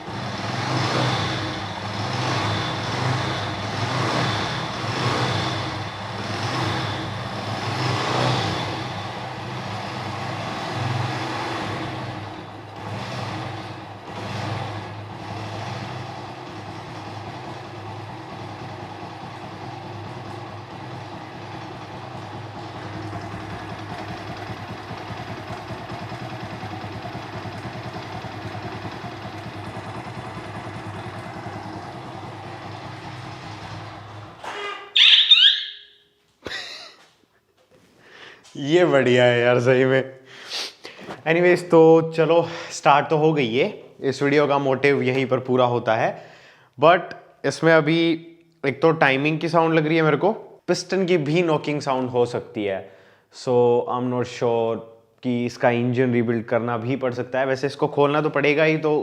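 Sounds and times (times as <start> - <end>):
motorcycle engine revving and idling: 0.0 - 35.4.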